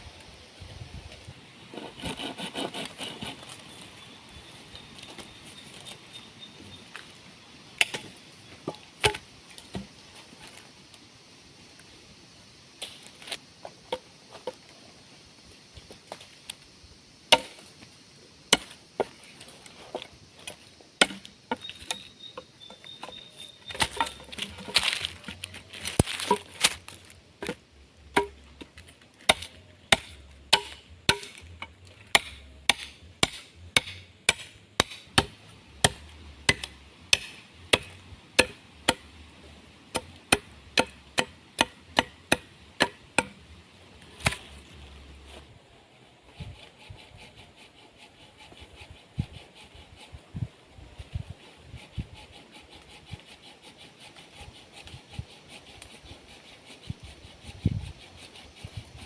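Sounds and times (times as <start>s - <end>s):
axe chopping wood: 8.7s - 9.9s, 17.3s - 17.7s, 21.0s - 22.0s, 23.0s - 39.1s, 39.9s - 43.4s, 44.2s - 44.6s.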